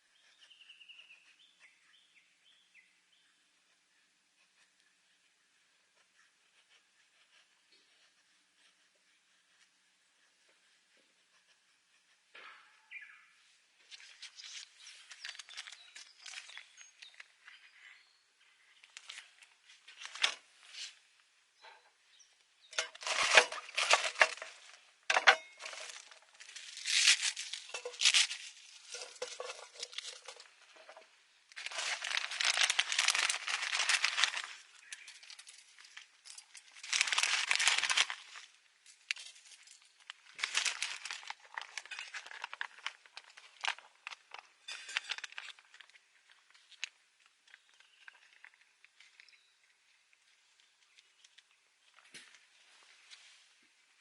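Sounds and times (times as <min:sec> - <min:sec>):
packaging crinkling and rustling: 0:13.9 - 0:17.4, 0:18.8 - 0:21.0, 0:22.8 - 0:49.4.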